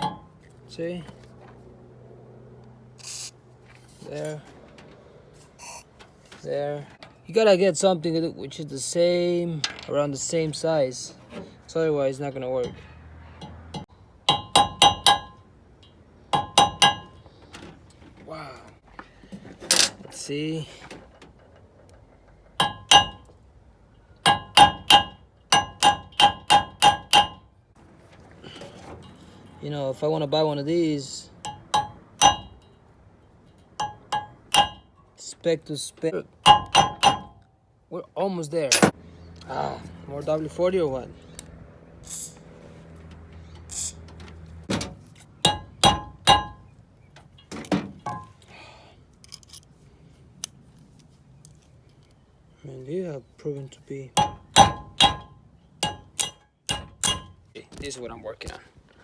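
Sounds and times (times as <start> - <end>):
hammer striking metal: 0.0 - 0.4, 13.4 - 17.2, 22.6 - 23.3, 24.2 - 27.4, 31.4 - 32.7, 33.8 - 34.9, 36.4 - 37.4, 38.7 - 39.0, 44.7 - 46.6, 54.2 - 57.4.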